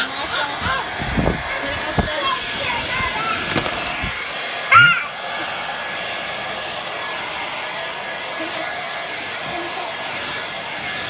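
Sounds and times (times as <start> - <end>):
hair dryer blowing: 2.8 - 11.0.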